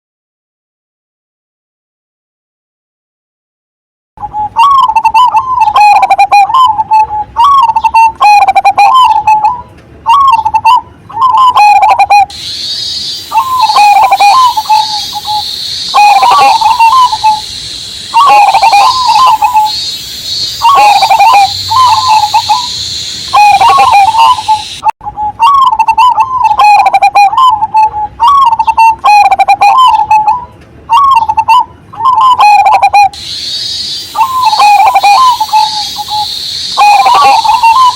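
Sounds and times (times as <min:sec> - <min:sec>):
dove cooing: 0:04.2 - 0:37.9
high cicada drone: 0:11.3 - 0:30.3, 0:31.0 - 0:37.9.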